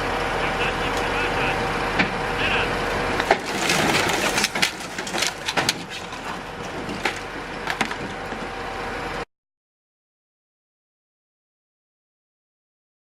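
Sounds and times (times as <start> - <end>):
vehicle crash impacts: 3.2 - 8.2.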